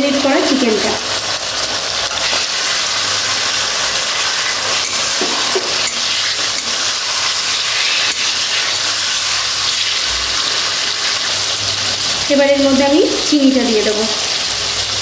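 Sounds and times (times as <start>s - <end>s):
chicken sizzling in hot oil: 0.0s - 15.0s
metal spatula scraping pan: 4.1s - 11.3s.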